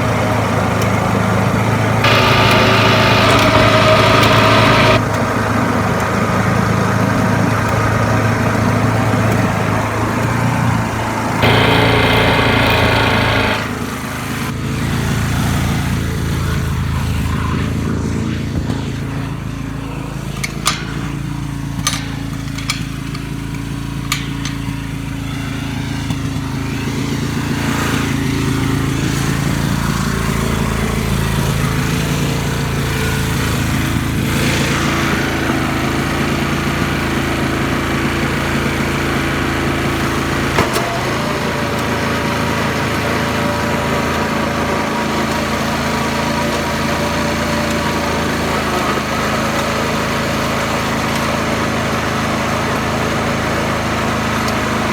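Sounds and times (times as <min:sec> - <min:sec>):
garden tractor engine running: 0:00.0 - 0:54.9
sharp clicks: 0:02.0 - 0:05.0, 0:11.4 - 0:13.9.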